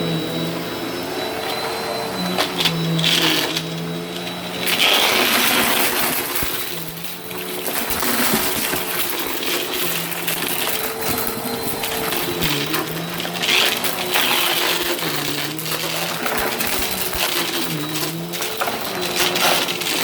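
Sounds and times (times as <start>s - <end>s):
vacuum cleaner motor hum: 0.0s - 20.0s
debris crunching and clicking: 4.7s - 20.0s.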